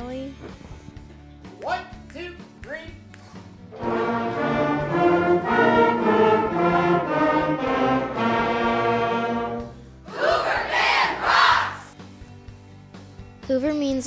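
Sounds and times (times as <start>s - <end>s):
wind band playing chords: 3.7s - 11.9s
students shouting together: 10.1s - 11.9s.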